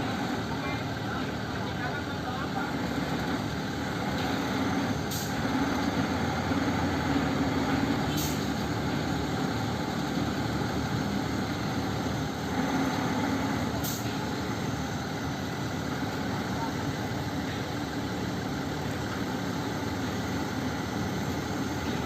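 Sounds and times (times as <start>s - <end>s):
truck diesel engine running: 0.0s - 22.0s
short air hisses: 8.1s - 8.6s, 13.8s - 14.2s.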